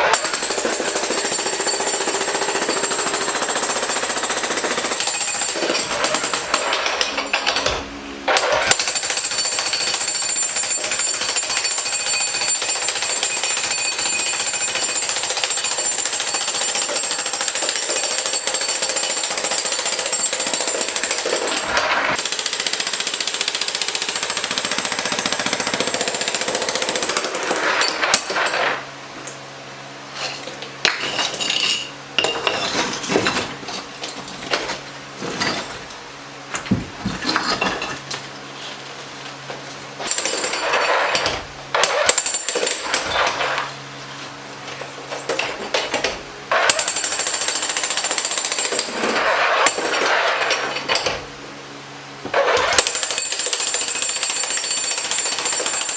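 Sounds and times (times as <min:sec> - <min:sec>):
jackhammer breaking concrete: 0:00.0 - 0:29.3, 0:30.2 - 0:38.3, 0:40.0 - 0:43.8, 0:44.6 - 0:51.3, 0:52.2 - 0:55.9.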